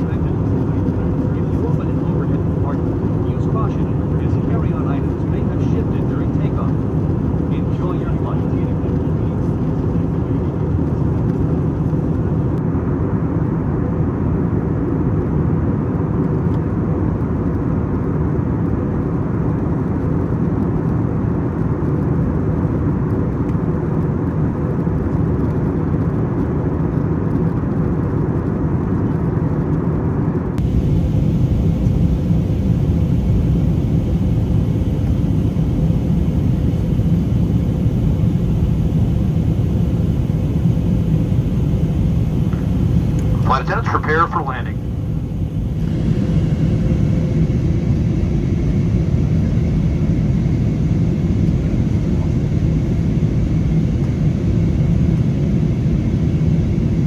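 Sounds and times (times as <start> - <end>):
airflow rush in aircraft cabin: 0.0 - 57.0
jet engines: 0.0 - 57.0
faint steady hum: 30.5 - 53.4.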